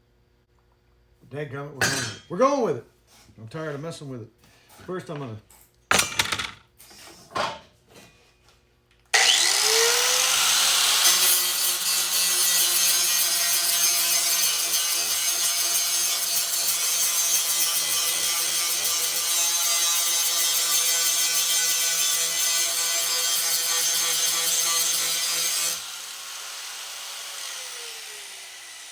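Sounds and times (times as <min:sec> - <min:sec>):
power tool motor whining: 0:09.2 - 0:15.2, 0:24.9 - 0:28.9.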